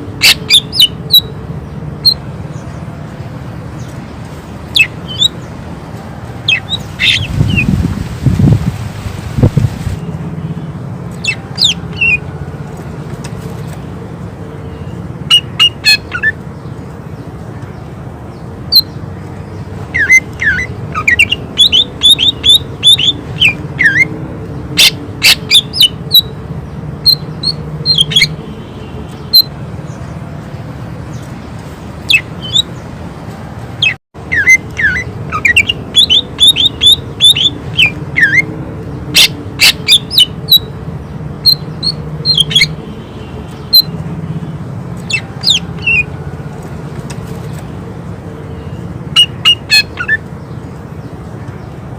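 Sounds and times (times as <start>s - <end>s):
bird chirping and whistling: 0.2s - 1.3s, 4.7s - 5.4s, 6.4s - 7.8s, 11.2s - 12.2s, 15.3s - 16.4s, 19.9s - 24.1s, 24.8s - 26.3s, 27.0s - 28.4s, 32.1s - 32.7s, 33.8s - 38.5s, 39.2s - 40.7s, 41.4s - 42.8s, 45.0s - 46.1s, 49.2s - 50.2s.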